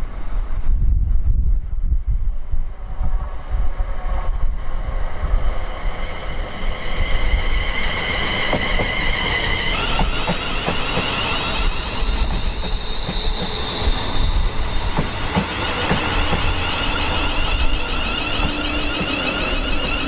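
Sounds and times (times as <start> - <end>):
wind buffeting microphone: 0.0 - 20.0
train high ringing tones: 5.8 - 20.0.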